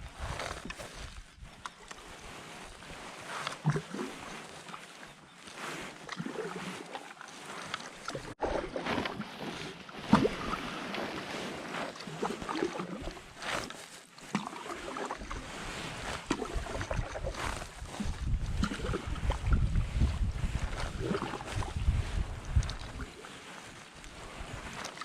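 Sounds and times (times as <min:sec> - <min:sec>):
paddle splashing water: 0:00.0 - 0:25.0
wind buffeting microphone: 0:16.5 - 0:23.1.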